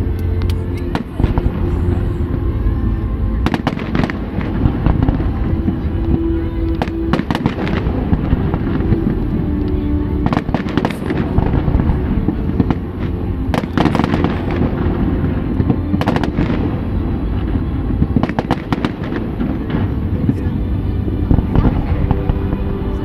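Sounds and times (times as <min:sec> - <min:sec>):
fireworks crackling pops: 0:16.0 - 0:16.8.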